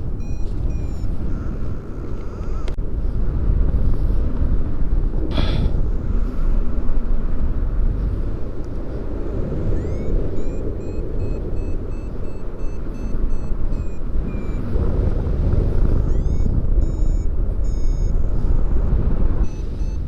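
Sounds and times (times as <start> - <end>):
variometer beeping: 0.0 - 2.8, 8.8 - 20.0
wind rushing over microphone: 0.0 - 20.0.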